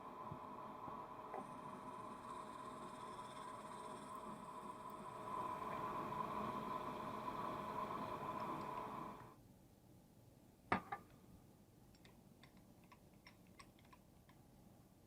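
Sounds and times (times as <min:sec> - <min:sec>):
machine tool humming: 0:00.0 - 0:09.3.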